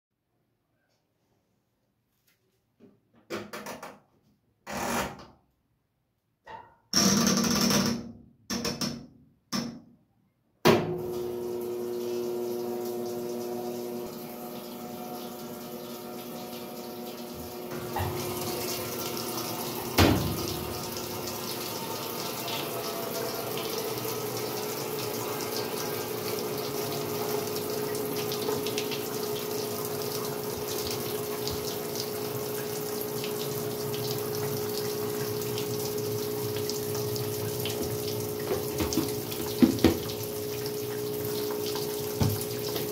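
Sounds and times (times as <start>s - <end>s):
water rushing into washing machine: 10.7s - 42.9s
washing machine knocks: 17.7s - 19.2s, 19.8s - 21.1s, 37.6s - 40.2s, 42.0s - 42.9s.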